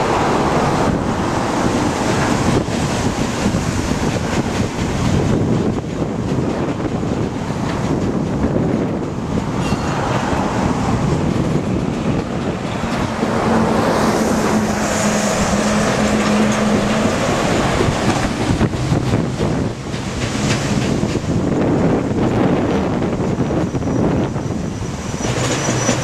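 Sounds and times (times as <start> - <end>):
train rolling past: 0.0 - 26.0
wind noise on microphone: 0.0 - 26.0
truck engine hum: 10.6 - 21.8.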